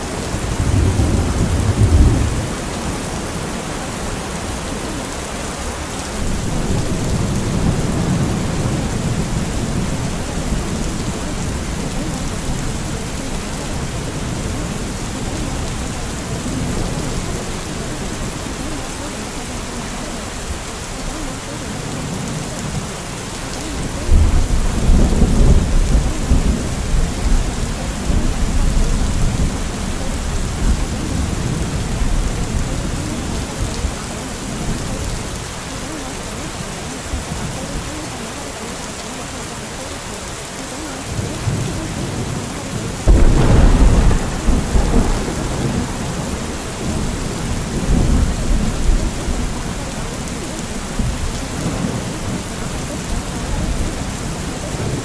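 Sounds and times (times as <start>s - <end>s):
thunder rumbling: 0.0s - 36.0s, 41.0s - 55.0s
steady rain: 0.0s - 55.0s.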